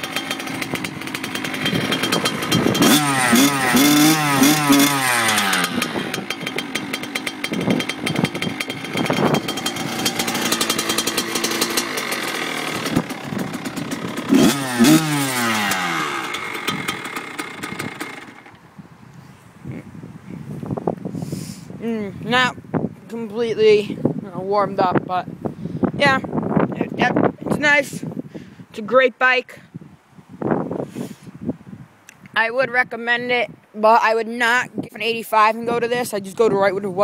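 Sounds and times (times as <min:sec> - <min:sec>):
engine throttle blips revving: 0:00.0 - 0:18.6
two-stroke engine idling: 0:00.0 - 0:18.6.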